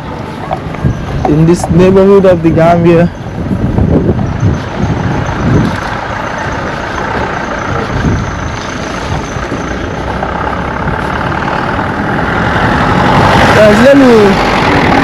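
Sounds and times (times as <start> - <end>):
low traffic rumble: 0.0 - 15.0
vehicles passing: 0.0 - 15.0.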